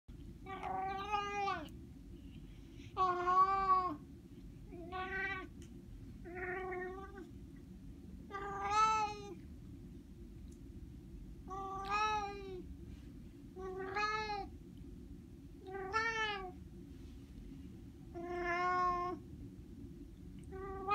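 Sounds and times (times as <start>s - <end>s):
cat meowing: 0.5s - 1.7s, 8.3s - 9.4s, 11.5s - 12.6s, 13.6s - 14.5s, 15.7s - 16.5s, 18.2s - 19.2s.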